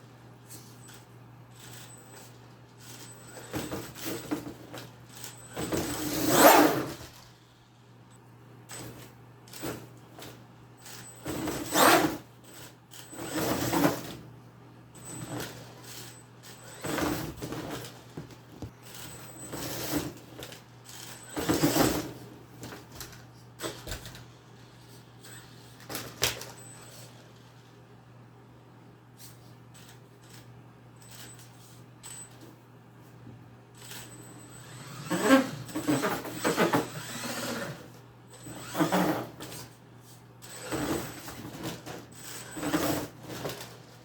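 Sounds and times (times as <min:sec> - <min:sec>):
electric rc truck motor bursts: 0:05.2 - 0:07.2, 0:33.9 - 0:39.5.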